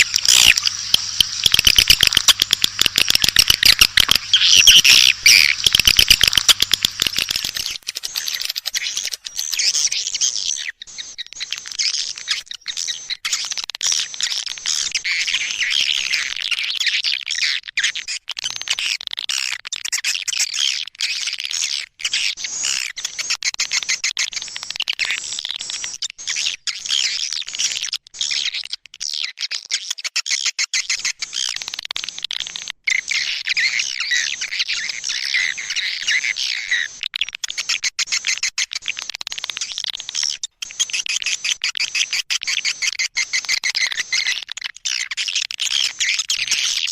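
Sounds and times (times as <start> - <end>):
swiftlets twittering: 0.0 - 13.5.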